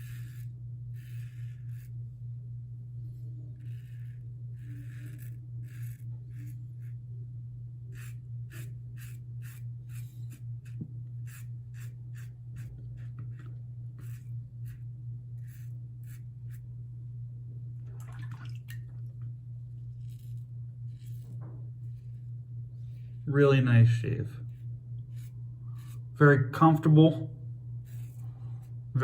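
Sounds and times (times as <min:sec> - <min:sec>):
razor scraping stubble: 0:00.0 - 0:02.0, 0:03.4 - 0:07.0, 0:07.9 - 0:16.7, 0:19.6 - 0:27.0, 0:27.7 - 0:29.0
steady low hum: 0:00.0 - 0:29.0.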